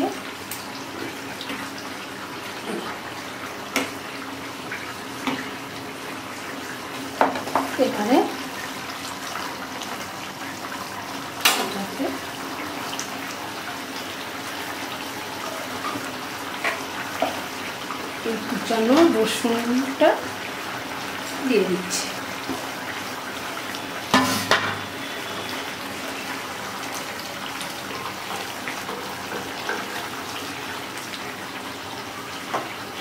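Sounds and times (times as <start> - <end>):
curry simmering in a pan: 0.0 - 33.0.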